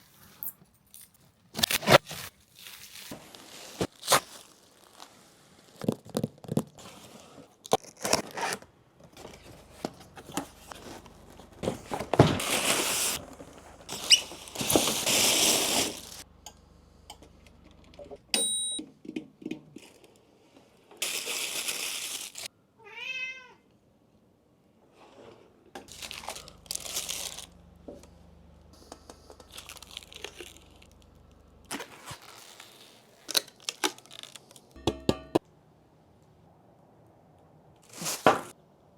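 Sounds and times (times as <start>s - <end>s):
packaging rustling and tearing: 0.9s - 16.2s, 21.0s - 22.5s, 25.9s - 27.6s, 29.2s - 34.8s, 37.8s - 38.5s
cat meowing: 22.8s - 23.7s.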